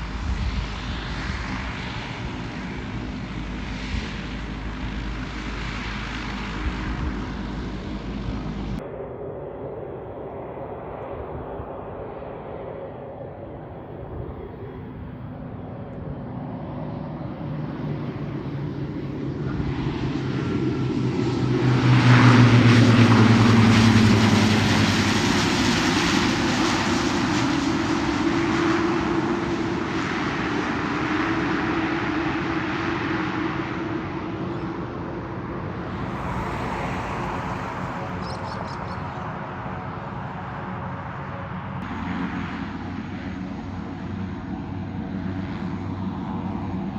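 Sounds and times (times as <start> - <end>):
airliner passing: 0.0 - 46.9.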